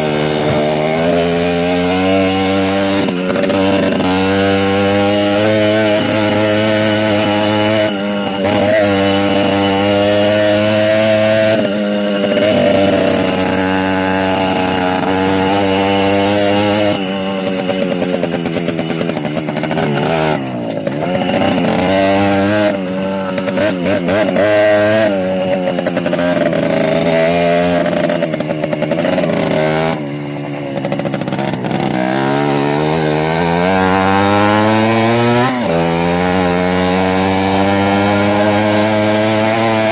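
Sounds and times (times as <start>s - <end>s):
small motorbike engines: 0.0s - 39.9s.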